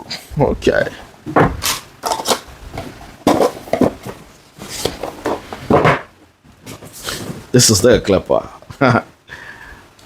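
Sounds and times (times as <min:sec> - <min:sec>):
items clattering on a table: 0:01.3 - 0:07.5.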